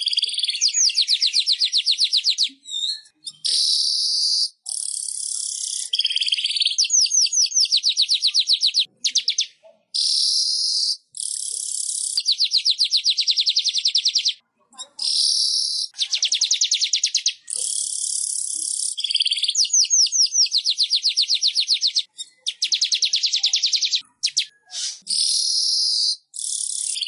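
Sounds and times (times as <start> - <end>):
bird rapid rising chirps: 0.0 - 14.4, 15.1 - 27.0
bird buzzy hissing song: 3.3 - 8.8, 16.6 - 21.0, 22.6 - 27.0.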